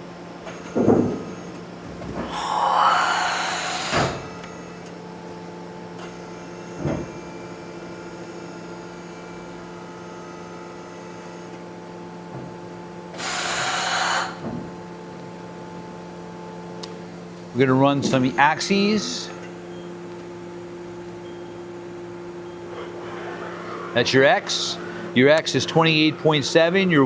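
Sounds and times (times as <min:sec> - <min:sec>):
machine hum: 0:00.0 - 0:27.0
hissing bursts: 0:02.2 - 0:04.3, 0:13.2 - 0:14.4.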